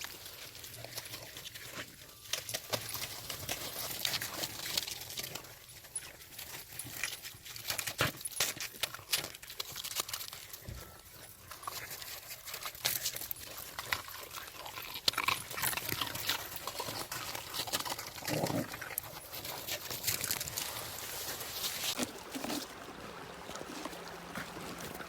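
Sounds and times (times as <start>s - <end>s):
crisp clicks and crunches: 0.0s - 22.6s
low dog vocalisation: 16.0s - 19.2s.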